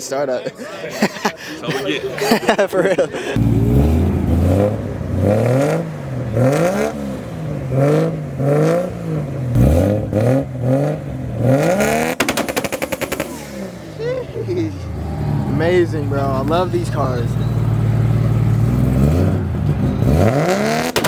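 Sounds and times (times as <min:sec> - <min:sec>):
sports car engine revving: 0:03.4 - 0:21.0
exhaust pops and crackles: 0:12.0 - 0:13.8, 0:20.8 - 0:21.0.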